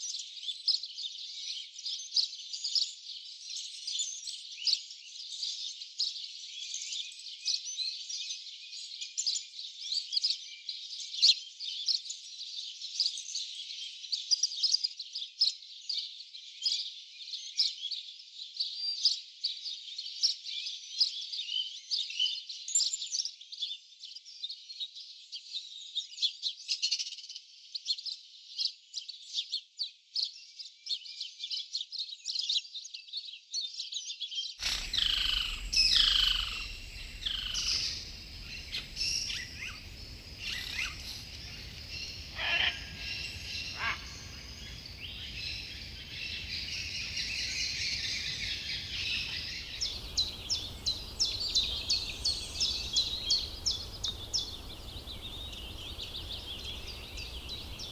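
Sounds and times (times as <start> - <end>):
steady hiss: 34.6 - 42.4, 49.0 - 57.9
birds chirping: 34.6 - 57.9
descending bird whistles: 34.6 - 57.9.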